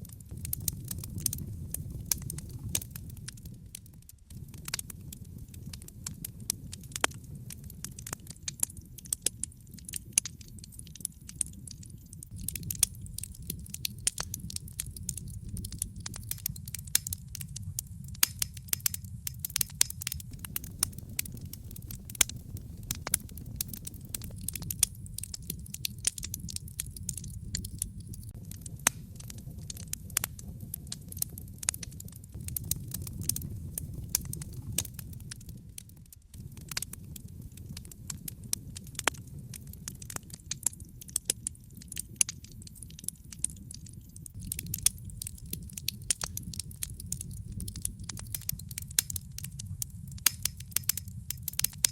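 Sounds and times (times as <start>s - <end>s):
fire crackling and popping: 0.0s - 51.9s
rumble of flames: 0.0s - 51.9s.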